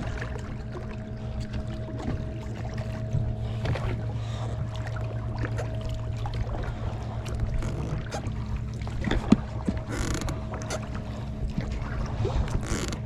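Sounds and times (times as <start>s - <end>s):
boat motor humming: 0.0s - 13.0s
clicks knocks and creaks: 7.3s - 8.4s, 9.0s - 11.0s, 12.5s - 13.0s.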